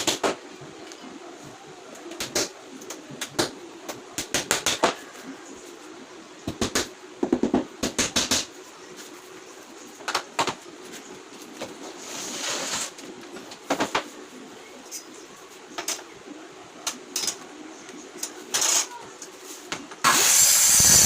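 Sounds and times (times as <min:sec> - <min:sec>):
faint steady hum: 0:00.0 - 0:21.0
hissing scrape: 0:11.8 - 0:13.0.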